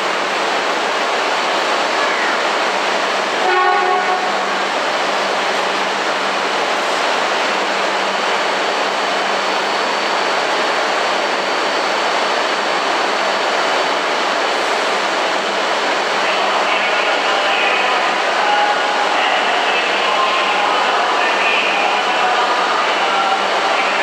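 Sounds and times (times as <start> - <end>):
train cooling fans rushing hum: 0.0 - 24.0
faint crowd voices: 16.1 - 24.0.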